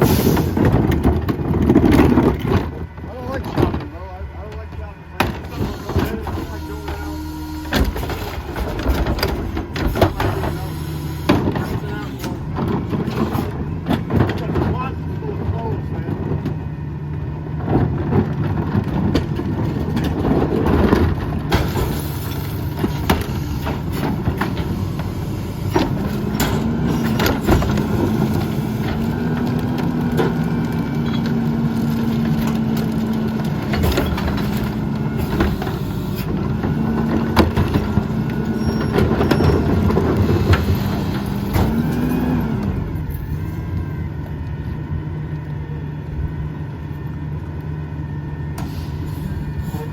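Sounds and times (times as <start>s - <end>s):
bangs and clatter: 0.0s - 4.0s
diesel engine running: 0.0s - 49.9s.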